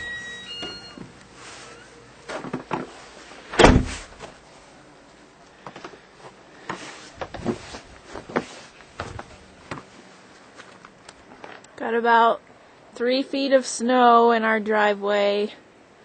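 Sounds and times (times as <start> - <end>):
heavy thump: 3.5 - 4.3.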